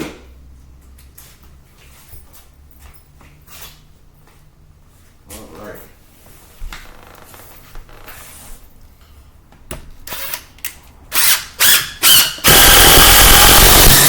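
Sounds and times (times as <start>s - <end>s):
power drill driving a screw: 10.1s - 10.4s, 11.1s - 14.0s.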